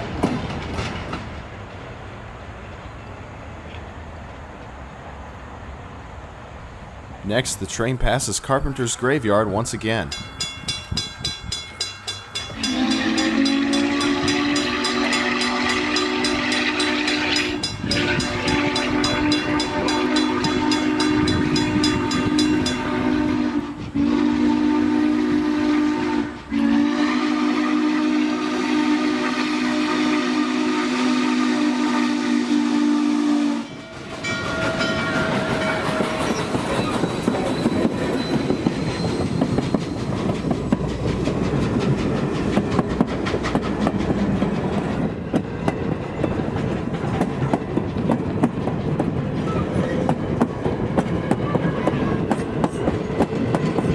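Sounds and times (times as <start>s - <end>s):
train wheels clicking over rail joints: 0.0s - 4.8s, 10.1s - 25.5s, 33.7s - 53.9s
steam locomotive chime whistle: 7.6s - 40.1s.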